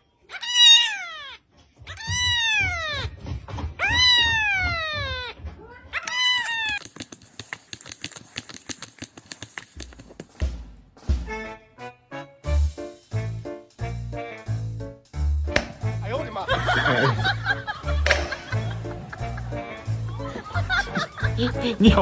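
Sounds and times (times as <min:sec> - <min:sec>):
cat meowing: 0:00.3 - 0:03.2, 0:03.8 - 0:06.8
fast clicks: 0:06.0 - 0:10.4
low thumps: 0:15.5 - 0:20.8.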